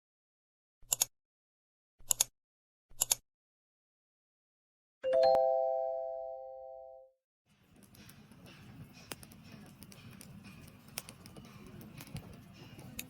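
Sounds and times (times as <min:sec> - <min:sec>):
bell-like chime with click: 0:05.1 - 0:06.9.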